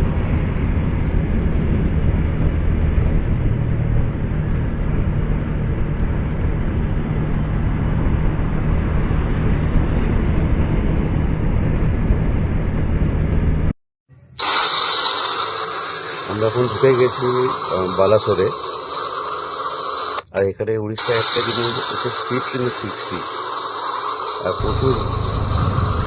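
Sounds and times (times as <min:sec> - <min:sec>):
wind rushing over microphone: 0:00.0 - 0:13.7, 0:24.6 - 0:26.0
motorcycle engine drone: 0:00.0 - 0:17.7, 0:21.2 - 0:26.0.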